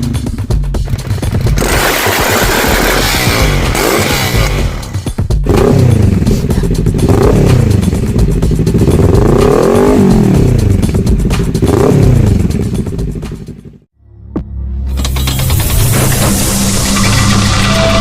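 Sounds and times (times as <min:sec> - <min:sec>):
motorcycle engine revving: 0:00.0 - 0:13.9.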